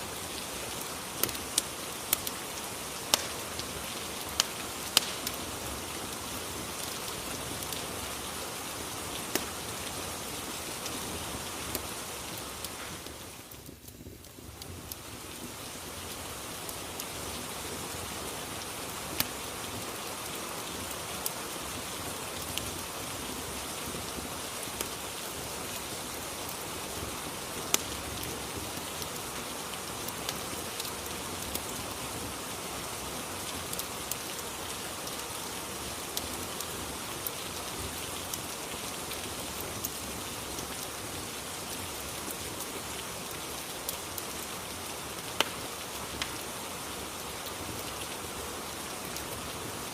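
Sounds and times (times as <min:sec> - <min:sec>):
steady rain: 0:00.0 - 0:49.9
sharp crackling pops: 0:00.8 - 0:05.5, 0:09.1 - 0:09.6, 0:27.7 - 0:28.0, 0:45.3 - 0:46.4.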